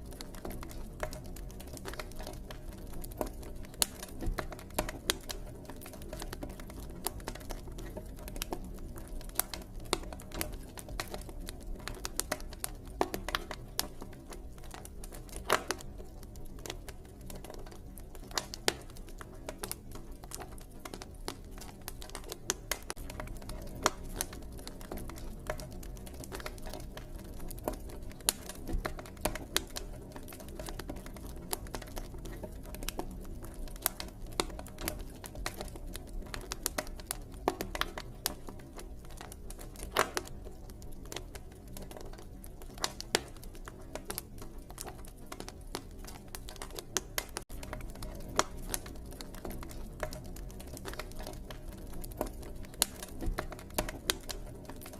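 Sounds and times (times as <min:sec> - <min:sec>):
campfire crackling: 0:00.0 - 0:54.9
low rumble of burning fire: 0:00.0 - 0:54.9.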